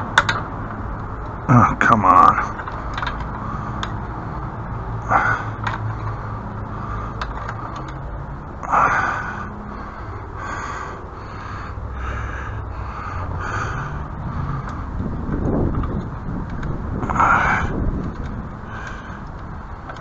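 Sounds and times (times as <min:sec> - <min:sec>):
steady low rumble: 0:00.0 - 0:20.0
crow cawing: 0:08.9 - 0:14.1.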